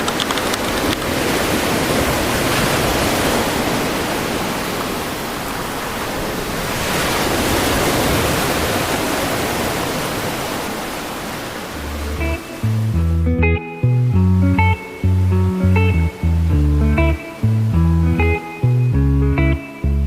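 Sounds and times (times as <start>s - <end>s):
sea surf washing onto beach: 0.0s - 13.0s.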